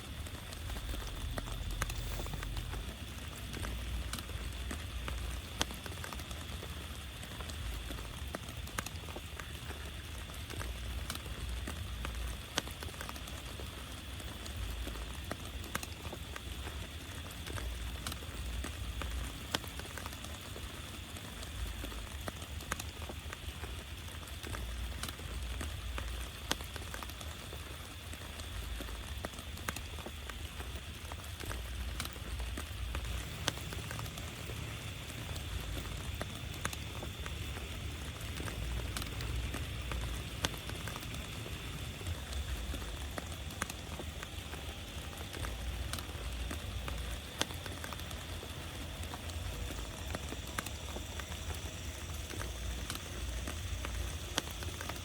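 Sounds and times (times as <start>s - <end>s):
raindrop impacts: 0.0s - 55.0s
steady rain: 0.0s - 55.0s
low rumble: 0.4s - 5.3s.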